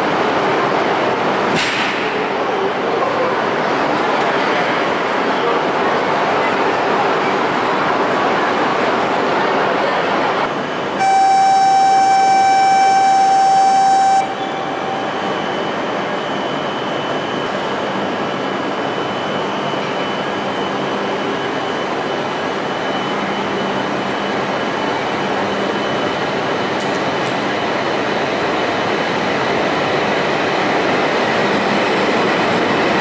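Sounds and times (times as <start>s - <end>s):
train rumbling with high whine: 0.0s - 33.0s
loud steady tone: 10.5s - 26.2s.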